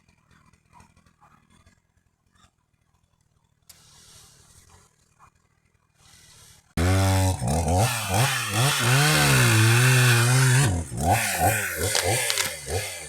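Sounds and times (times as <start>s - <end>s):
chainsaw engine revving: 6.1s - 13.0s.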